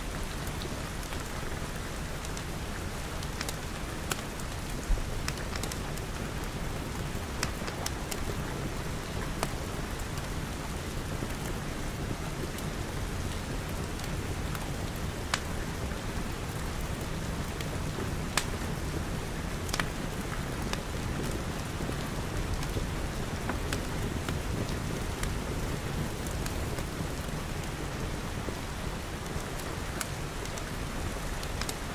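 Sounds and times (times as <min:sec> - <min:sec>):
rain on a glass roof: 0:00.0 - 0:31.9
wood fire popping and crackling: 0:00.2 - 0:31.9.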